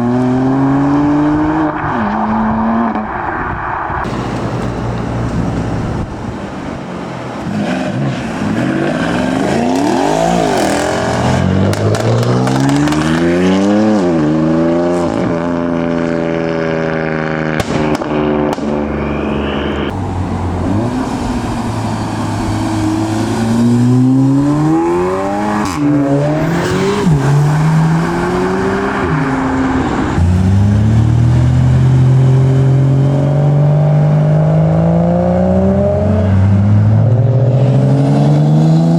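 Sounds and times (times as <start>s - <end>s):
car engines accelerating hard: 0.0s - 38.9s
sharp exhaust cracks: 2.9s - 13.3s.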